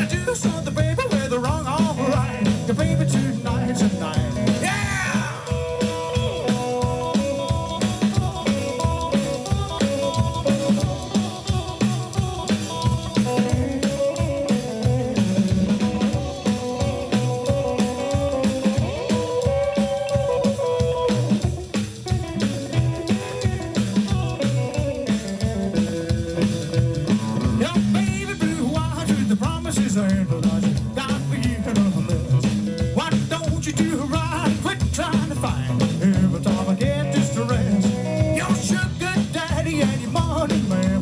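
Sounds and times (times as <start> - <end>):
double bass: 0.0 - 5.0
drum kit beat: 0.0 - 41.0
electric guitar lines: 0.0 - 41.0.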